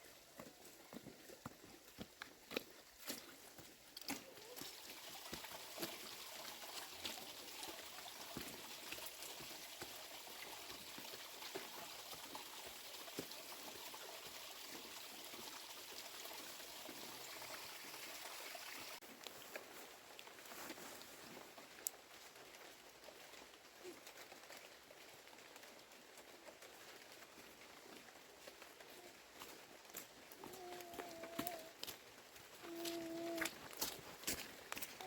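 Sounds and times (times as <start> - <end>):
water trickling: 3.0 - 19.0.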